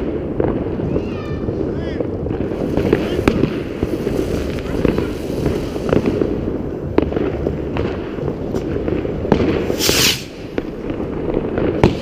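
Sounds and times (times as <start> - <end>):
distant fireworks rumbling: 0.0 - 12.0
firecrackers cracking nearby: 0.0 - 12.0
short hiss: 9.7 - 10.4.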